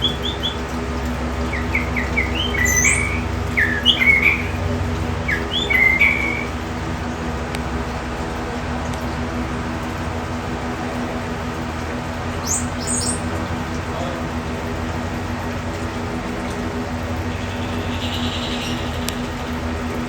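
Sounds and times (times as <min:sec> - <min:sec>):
high bird chirps: 0:00.0 - 0:00.6, 0:01.4 - 0:04.6, 0:05.2 - 0:06.6, 0:17.4 - 0:19.3
steady mechanical hum: 0:00.0 - 0:20.0.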